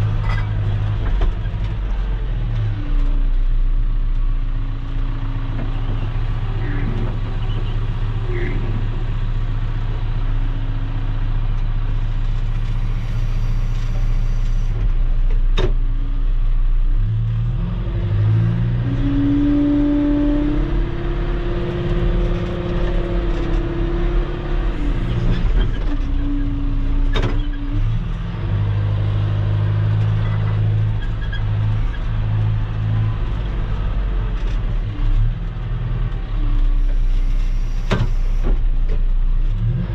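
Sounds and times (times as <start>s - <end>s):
heavy equipment engine running: 0.0s - 16.9s.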